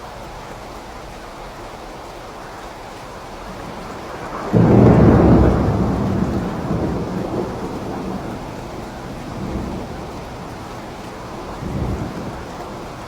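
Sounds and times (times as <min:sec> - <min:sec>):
steady rain: 0:00.0 - 0:13.0
thunderclap: 0:03.6 - 0:13.0.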